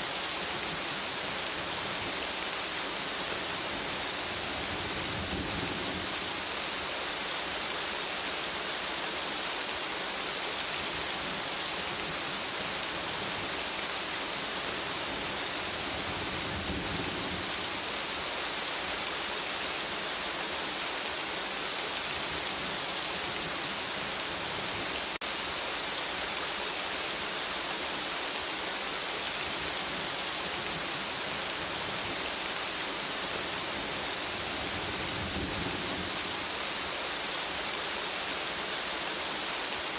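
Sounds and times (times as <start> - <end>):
rain on foliage: 0.0 - 39.9.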